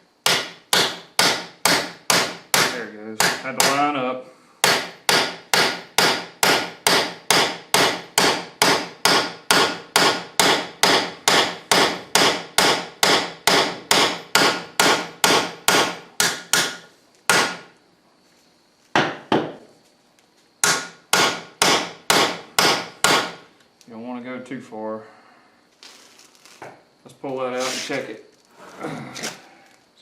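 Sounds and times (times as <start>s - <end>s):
hammer striking metal tool: 0.3s - 3.8s, 4.6s - 17.6s, 20.6s - 23.4s.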